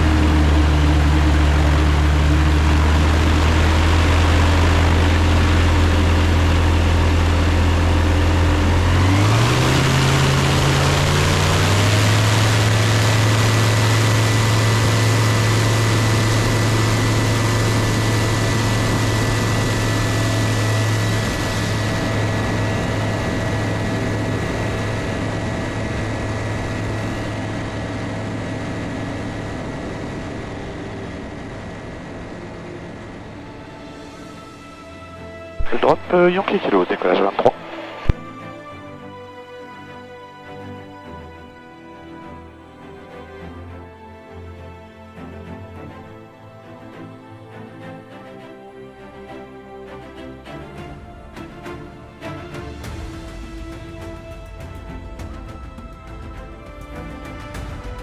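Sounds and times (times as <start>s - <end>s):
light aircraft engine and propeller: 0.0s - 36.0s, 48.5s - 58.0s.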